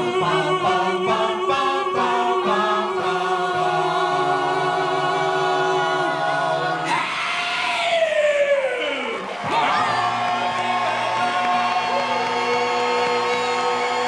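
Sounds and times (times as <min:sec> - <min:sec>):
a cappella group singing: 0:00.0 - 0:14.0
crowd cheering: 0:03.6 - 0:14.0.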